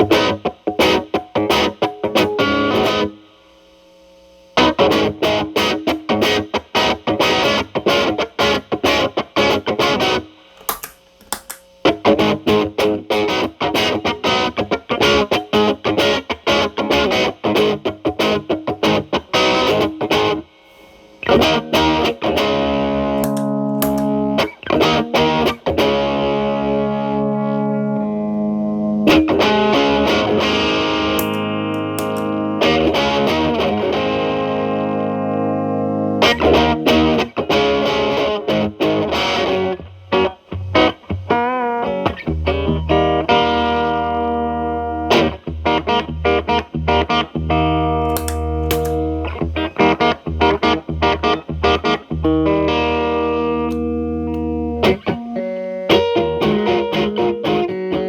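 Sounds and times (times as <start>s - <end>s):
distorted electric guitar: 0.0s - 3.2s, 21.2s - 58.0s.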